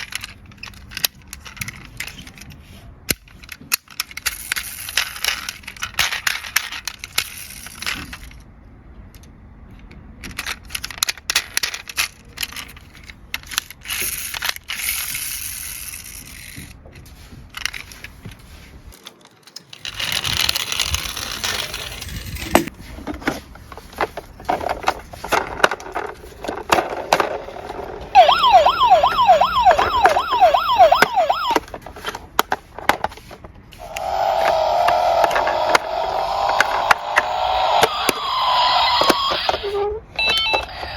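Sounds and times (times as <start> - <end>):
toy cars clattering down slope: 0.0 - 18.2, 19.0 - 40.9
fast-warbling siren: 28.2 - 31.6, 33.8 - 39.7.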